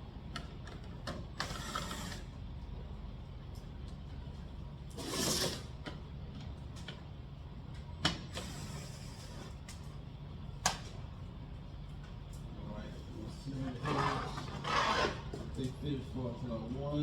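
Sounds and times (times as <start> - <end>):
steady low hum: 0.0 - 17.0
tool rasping scrape: 5.0 - 5.7, 13.8 - 15.4.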